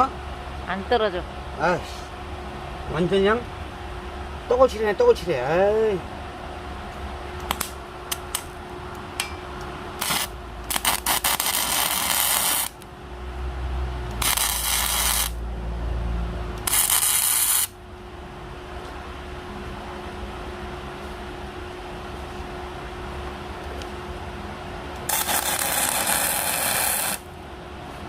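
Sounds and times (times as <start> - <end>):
welding arc crackling and hissing: 10.0 - 12.8, 14.1 - 15.4, 16.6 - 17.8, 25.0 - 27.3.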